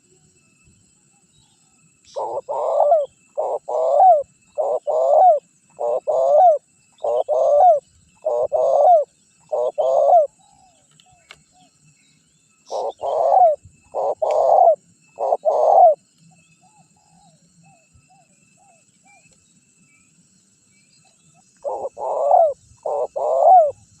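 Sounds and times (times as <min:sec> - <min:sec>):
dove cooing: 0:02.1 - 0:10.6, 0:12.7 - 0:16.0, 0:21.6 - 0:23.9.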